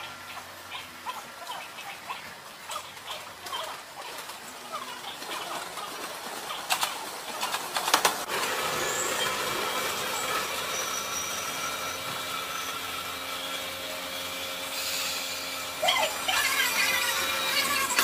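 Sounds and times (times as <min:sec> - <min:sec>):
train rolling on tracks: 0:00.0 - 0:18.0
wheel squeals: 0:08.4 - 0:15.1, 0:15.8 - 0:18.0.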